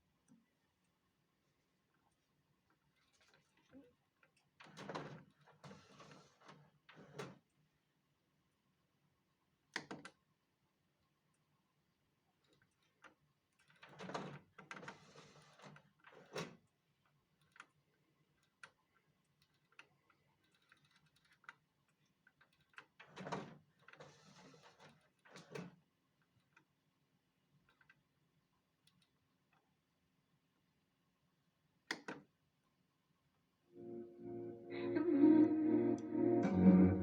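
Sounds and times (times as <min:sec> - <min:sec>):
faint mechanical clicks: 0:28.8 - 0:29.8.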